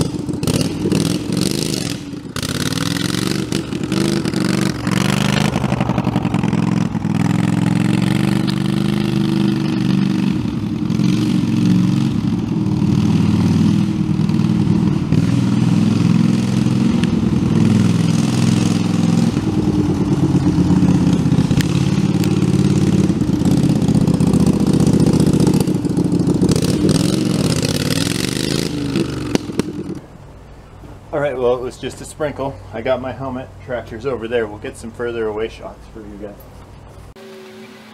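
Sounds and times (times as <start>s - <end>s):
tractor engine revving: 0.0s - 30.1s.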